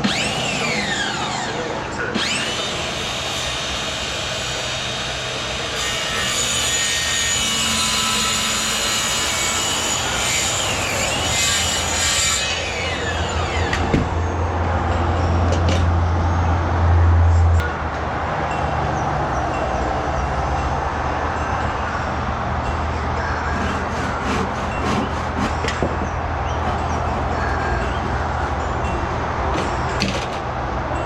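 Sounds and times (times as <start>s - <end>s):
timber being sawn: 0.0s - 14.2s, 23.4s - 30.2s.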